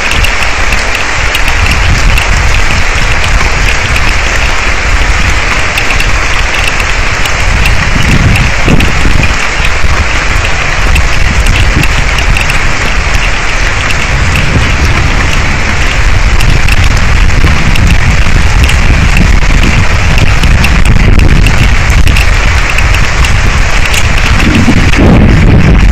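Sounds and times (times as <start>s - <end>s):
heavy rain on microphone: 0.0s - 25.9s
low rumble: 0.0s - 25.9s.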